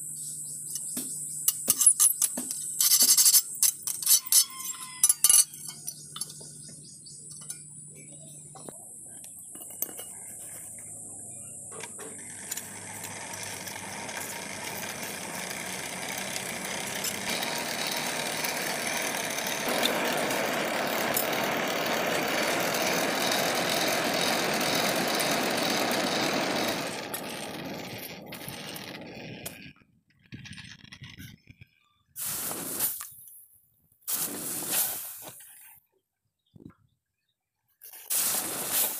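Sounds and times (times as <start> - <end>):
forge blower air blast: 12.1 - 29.6, 38.1 - 38.9.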